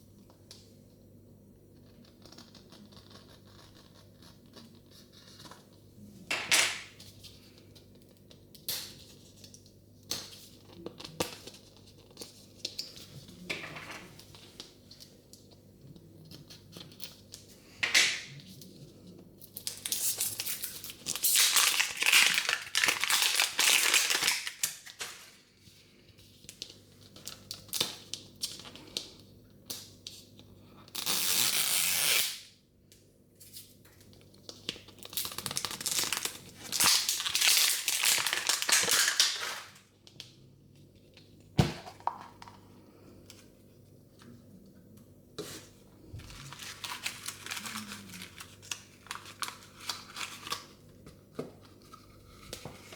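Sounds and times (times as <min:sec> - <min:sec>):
plastic wrapping crinkling: 0:19.6 - 0:25.4, 0:34.5 - 0:39.9, 0:46.0 - 0:50.8
plastic peeling tear: 0:19.8 - 0:25.3, 0:30.9 - 0:32.5, 0:35.0 - 0:39.8.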